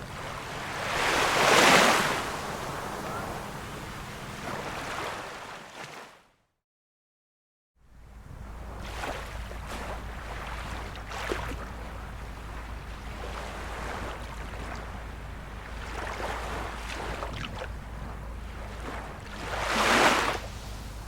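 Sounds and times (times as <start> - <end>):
small waves washing in: 0.0 - 6.2, 8.0 - 21.0
low rumble: 7.9 - 21.0.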